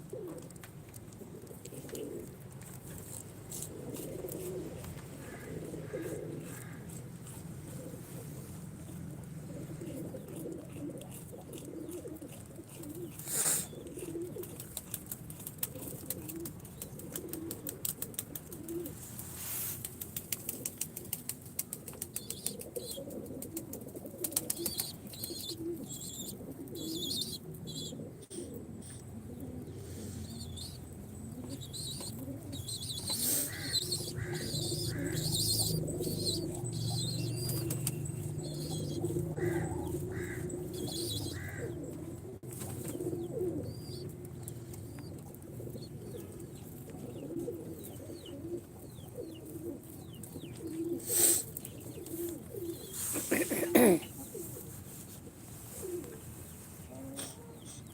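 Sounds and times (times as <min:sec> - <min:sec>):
pigeons cooing: 0:00.0 - 0:19.1, 0:20.4 - 0:54.9, 0:55.6 - 0:57.9
high bird chirps: 0:31.5 - 0:40.0.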